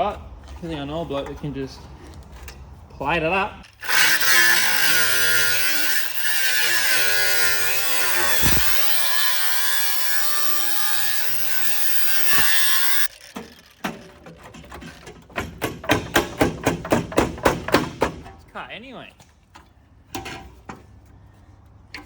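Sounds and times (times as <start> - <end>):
power tool cutting sheet metal: 3.7 - 14.3.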